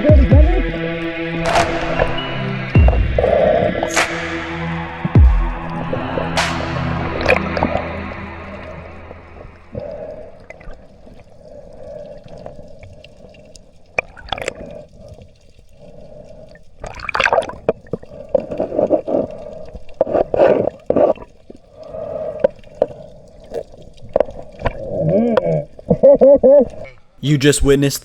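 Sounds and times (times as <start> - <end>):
steady hum: 0.0 - 11.0
water splashing and gurgling: 0.0 - 26.0.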